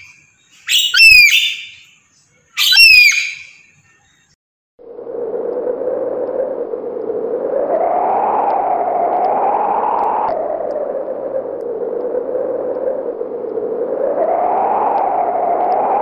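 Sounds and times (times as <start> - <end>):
steady whooshing noise: 4.8 - 16.0.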